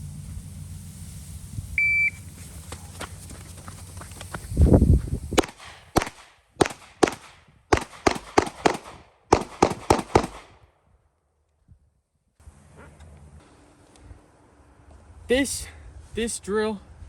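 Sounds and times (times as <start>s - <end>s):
handgun shots: 5.4s - 10.6s.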